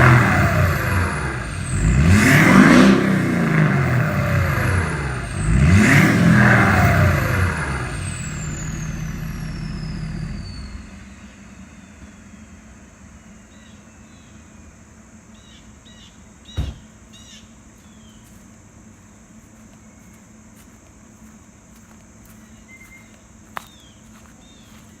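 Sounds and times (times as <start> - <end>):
diesel engine idling: 0.0 - 19.7
birds chirping: 0.0 - 20.4, 22.2 - 25.0
loud thump: 16.5 - 17.0.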